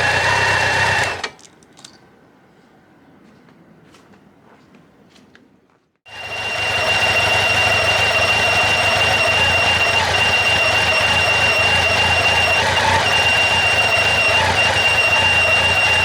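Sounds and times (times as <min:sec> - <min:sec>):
motorcycle engine running: 0:00.0 - 0:01.3, 0:06.1 - 0:16.0
high-pitched squeal: 0:06.1 - 0:16.0.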